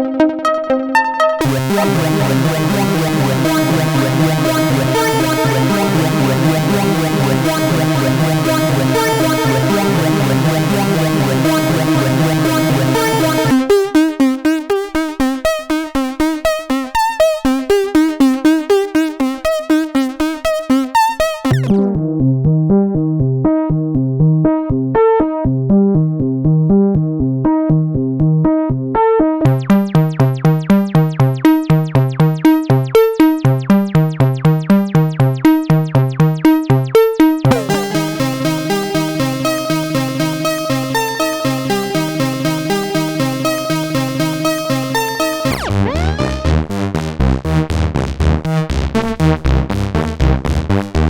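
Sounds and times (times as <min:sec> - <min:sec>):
synthesizer sequence of short notes: 0:01.4 - 0:13.9, 0:17.2 - 0:22.0, 0:37.5 - 0:51.0.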